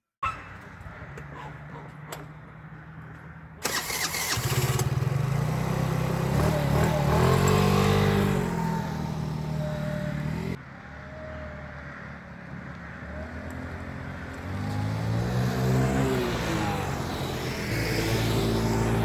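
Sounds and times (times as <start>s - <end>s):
scooter engine revving: 3.6s - 10.6s, 14.3s - 19.0s.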